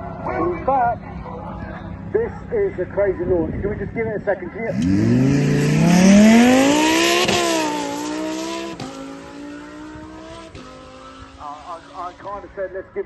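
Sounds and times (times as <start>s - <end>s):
car engine revving and upshifting: 4.7s - 12.3s.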